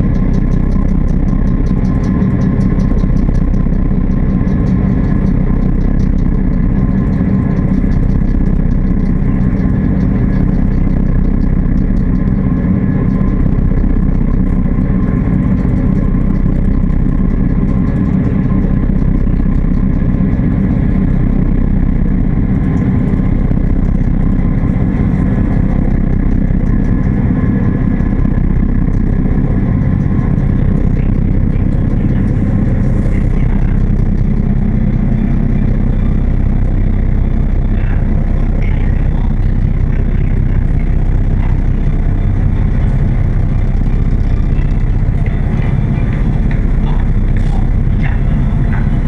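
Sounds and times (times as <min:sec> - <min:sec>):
ferry engines droning: 0:00.0 - 0:49.0.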